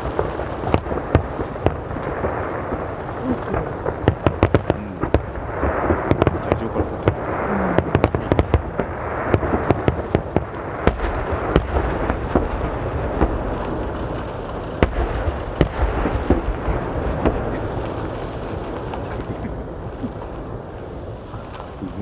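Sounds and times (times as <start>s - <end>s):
fireworks bangs: 0.0s - 22.0s
rumbling crackle of fireworks: 0.0s - 22.0s.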